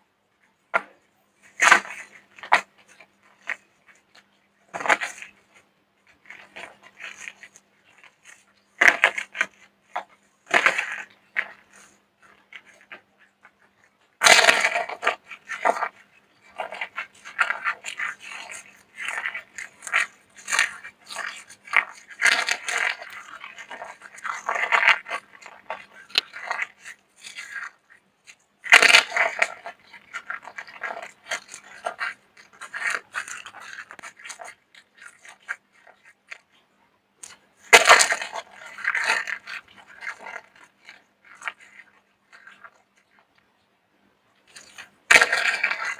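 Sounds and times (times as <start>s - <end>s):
soap being crushed by hand: 6.2s - 36.6s, 37.2s - 43.3s.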